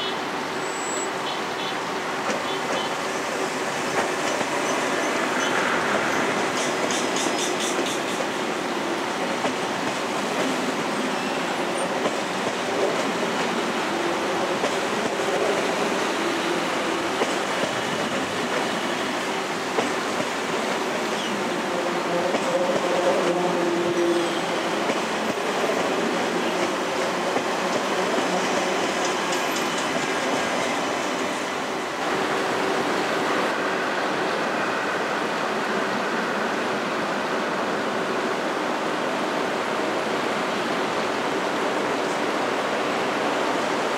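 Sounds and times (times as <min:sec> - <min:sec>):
wheels on rail: 0:22.3 - 0:32.3.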